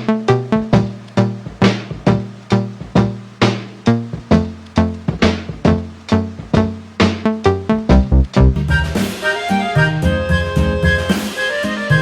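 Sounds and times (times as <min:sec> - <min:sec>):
lo-fi hip hop music: 0:00.0 - 0:12.0.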